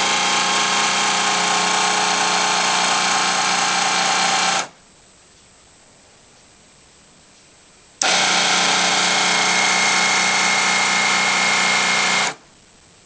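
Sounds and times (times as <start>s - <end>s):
sweeper brush motor whine: 0.0s - 4.8s, 8.0s - 12.4s.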